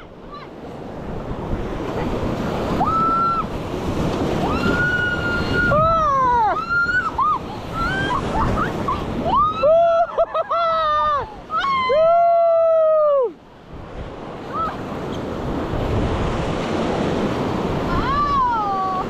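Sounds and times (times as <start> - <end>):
whitewater rushing and splashing: 0.0 - 19.0
wind on microphone: 0.7 - 19.0
people screaming and whooping: 2.8 - 3.5, 4.4 - 13.4.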